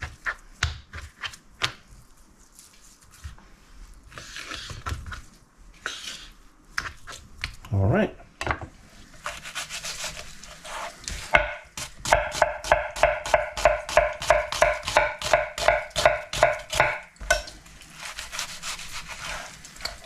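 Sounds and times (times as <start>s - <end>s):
knife chopping on cutting board: 9.3s - 17.4s.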